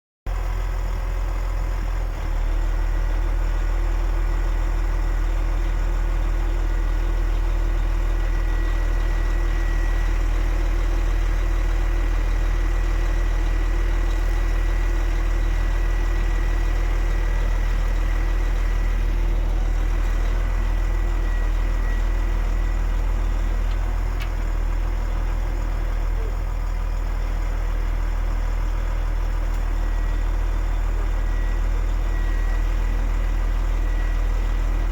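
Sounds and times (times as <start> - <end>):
truck diesel engine idling: 0.3 - 34.9.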